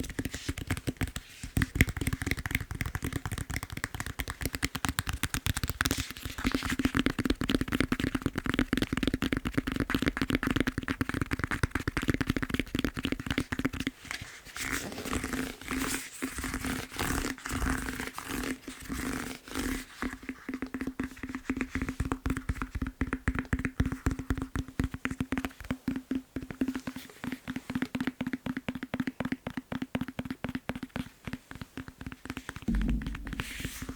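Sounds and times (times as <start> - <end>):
fingertips tapping on foam roller: 0.0 - 6.0.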